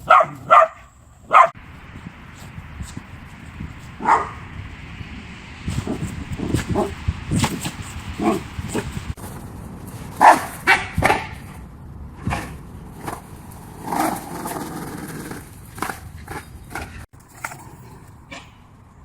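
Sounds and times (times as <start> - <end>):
dog barking: 0.0 - 1.6, 4.0 - 4.4, 8.2 - 8.9, 10.2 - 11.4.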